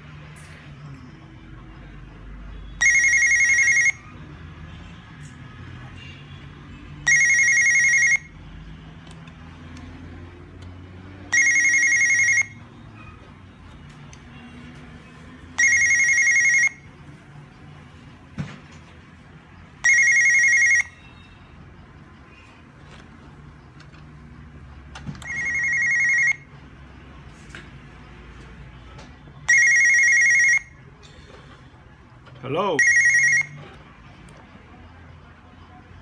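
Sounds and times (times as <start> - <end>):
electronic intercom ringing: 2.8 - 4.0, 7.1 - 8.4, 11.3 - 12.6, 15.6 - 16.9, 19.8 - 21.3, 25.2 - 26.5, 29.5 - 30.8, 32.7 - 33.6.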